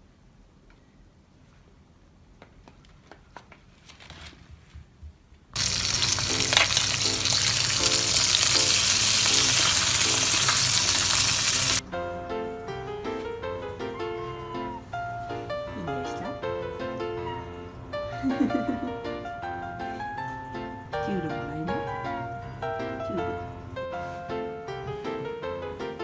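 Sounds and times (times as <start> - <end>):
fish sizzling in a frying pan: 5.6 - 11.8.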